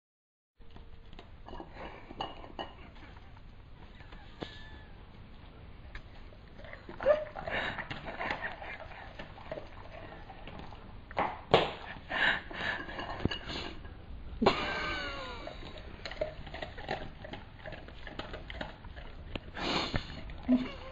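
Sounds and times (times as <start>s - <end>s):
cutlery clinking against dish: 1.5s - 2.8s, 12.7s - 13.8s.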